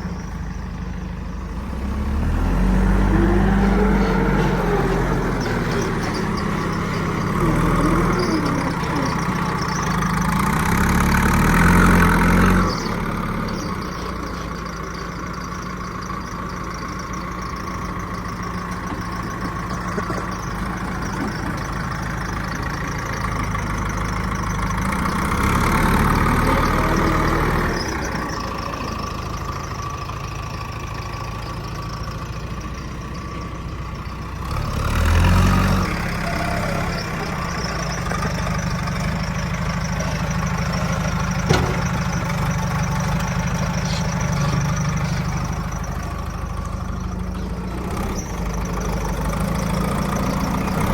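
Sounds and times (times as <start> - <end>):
heavy diesel engine revving: 0.0 - 50.9.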